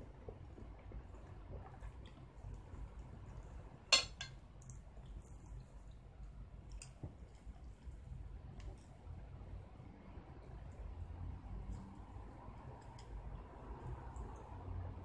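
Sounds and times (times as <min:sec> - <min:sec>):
cutlery clinking on a dish: 0:03.9 - 0:04.4.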